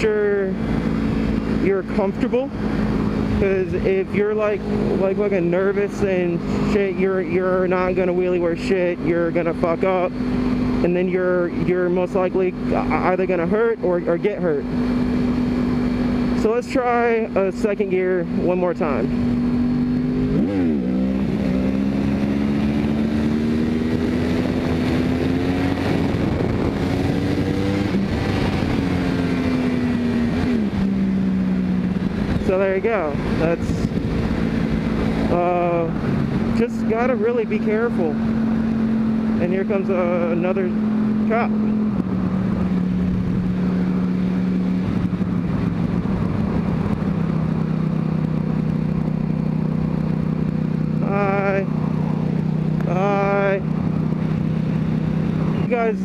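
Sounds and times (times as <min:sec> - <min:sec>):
motorcycle engine revving: 0:00.0 - 0:56.0
wind buffeting on microphone: 0:21.8 - 0:36.6, 0:41.0 - 0:55.8.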